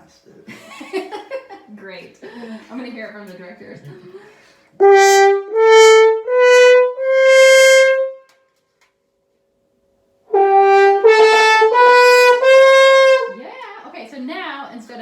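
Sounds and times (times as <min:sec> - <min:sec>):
french horn notes: 0:04.8 - 0:08.4, 0:10.3 - 0:13.5.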